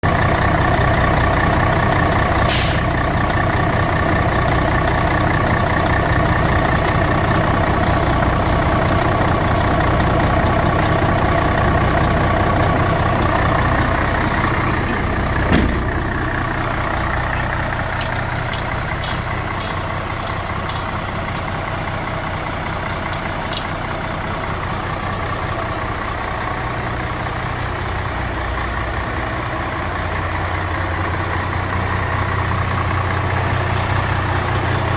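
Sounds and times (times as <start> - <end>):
truck diesel engine idling: 0.0 - 34.9
short hiss: 2.5 - 3.0.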